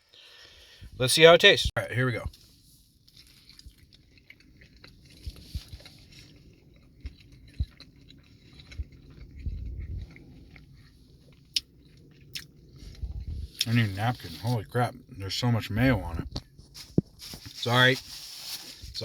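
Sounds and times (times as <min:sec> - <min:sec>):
small crunches: 0:02.3 - 0:14.8, 0:16.3 - 0:19.0
person chewing food: 0:02.3 - 0:15.2
wet mouth sounds: 0:04.4 - 0:14.4.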